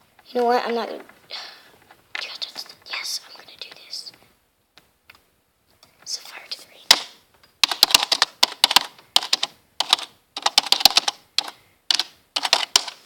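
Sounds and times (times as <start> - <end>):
typing on a keyboard: 6.9 - 13.0.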